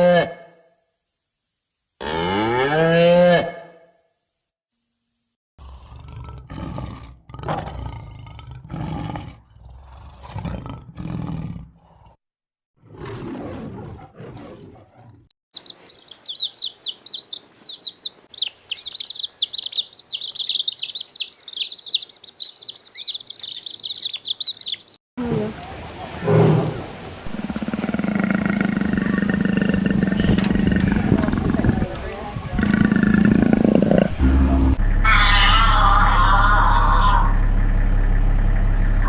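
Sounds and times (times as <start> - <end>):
rough animal calls: 15.6 - 25.0, 32.6 - 39.0
small birds chirping: 15.6 - 25.0, 37.9 - 39.0.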